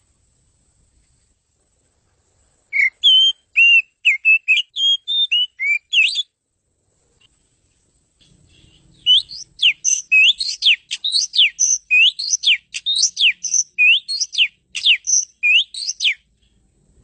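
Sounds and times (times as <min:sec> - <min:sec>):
bird singing whistled notes: 0:02.7 - 0:06.4, 0:08.2 - 0:16.5.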